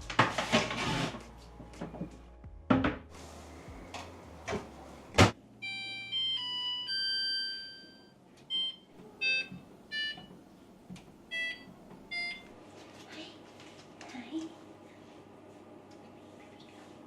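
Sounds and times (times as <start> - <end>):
appliance start-up jingle: 5.2 - 10.3.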